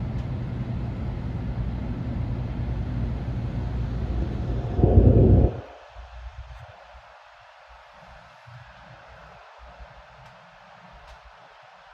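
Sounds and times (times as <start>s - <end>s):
train cabin low rumble: 1.8s - 5.8s
rush of noise: 3.3s - 5.8s.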